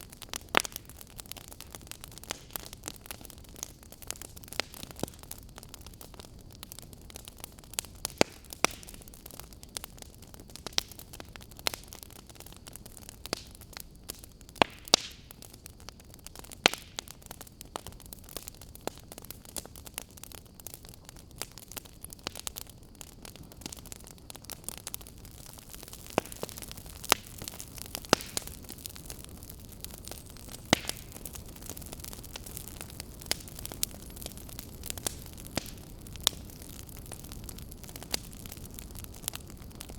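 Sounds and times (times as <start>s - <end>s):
fire crackling and popping: 0.0s - 39.9s
steady low hiss: 20.9s - 39.9s.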